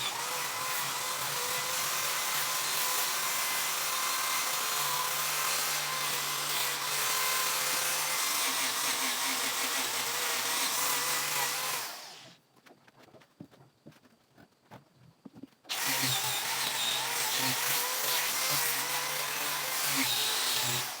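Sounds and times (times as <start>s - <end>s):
power tool whirring on wood: 0.0s - 12.4s, 15.7s - 21.0s.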